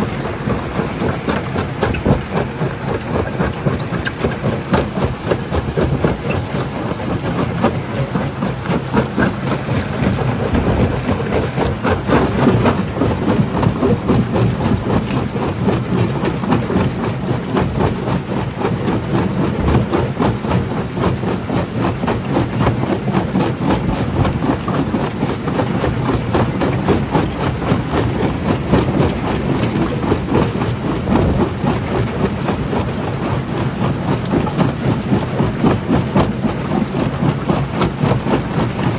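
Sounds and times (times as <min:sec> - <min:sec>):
rock crusher rumbling: 0:00.0 - 0:38.9.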